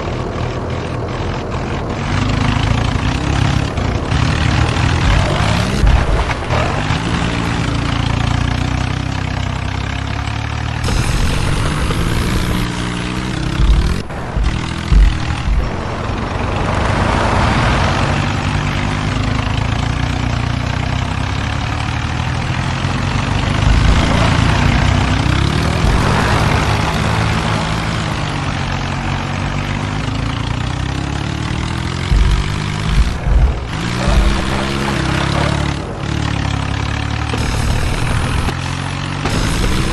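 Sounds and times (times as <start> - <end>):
tractor diesel engines under load: 0.0 - 39.9
low thumps: 2.8 - 10.0, 10.7 - 19.2, 23.6 - 29.0, 30.2 - 38.6.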